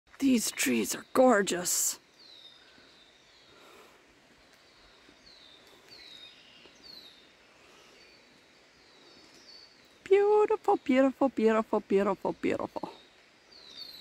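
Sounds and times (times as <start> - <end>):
quiet woodland background: 0.1 - 14.0
songbird calls: 0.2 - 14.0.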